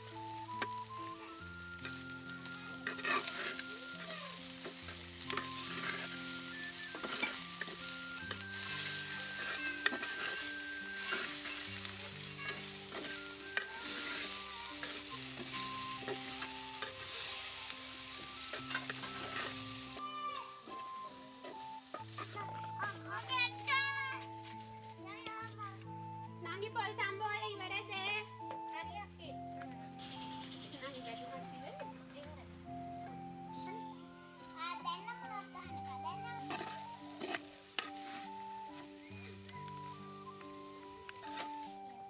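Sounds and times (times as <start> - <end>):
vegetables sizzling in pot: 0.0 - 24.3, 34.8 - 42.0
soft background melody: 0.0 - 42.0
wooden spoon scraping pot: 2.5 - 22.4, 36.4 - 39.2.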